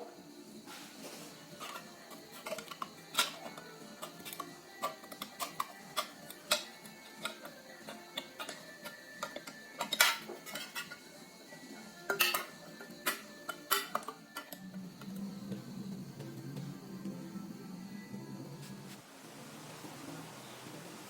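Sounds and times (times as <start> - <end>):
faint background music: 0.0 - 21.0.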